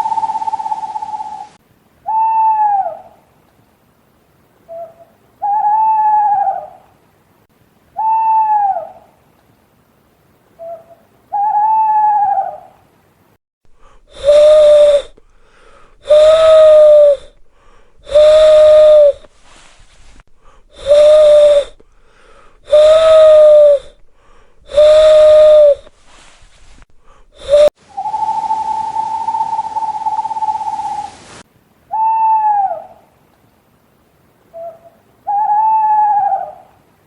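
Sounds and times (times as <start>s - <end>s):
owl hooting: 0.0s - 3.2s, 4.7s - 6.9s, 8.0s - 9.2s, 10.6s - 12.8s, 13.8s - 31.2s, 31.9s - 33.1s, 34.5s - 36.8s
long steady owl hoot: 0.0s - 3.4s, 4.6s - 7.0s, 7.9s - 9.2s, 10.6s - 12.8s, 13.7s - 31.2s, 31.9s - 33.2s, 34.5s - 36.9s.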